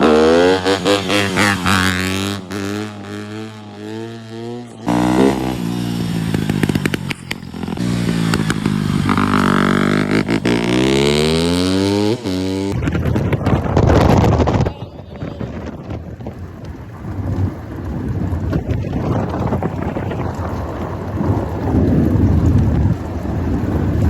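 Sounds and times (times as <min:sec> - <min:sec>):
off-road vehicle engines revving: 0:00.0 - 0:14.6.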